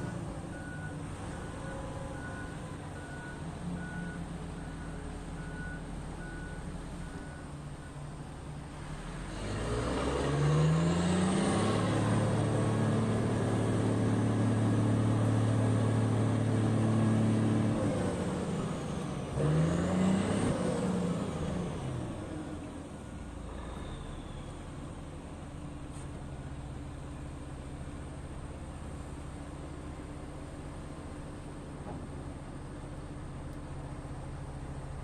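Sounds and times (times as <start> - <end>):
diesel engine revving: 8.7 - 25.2.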